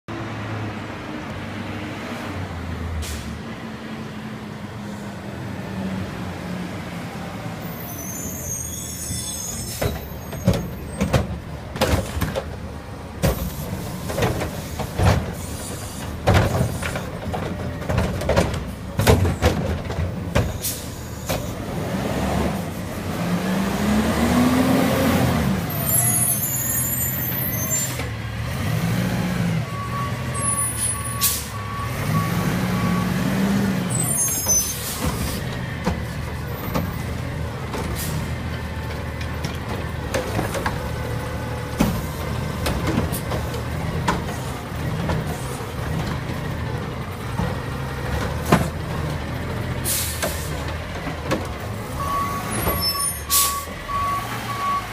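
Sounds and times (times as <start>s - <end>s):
knocks and bangs of dumped waste: 9.9s - 12.6s, 13.2s - 15.4s, 16.0s - 20.6s.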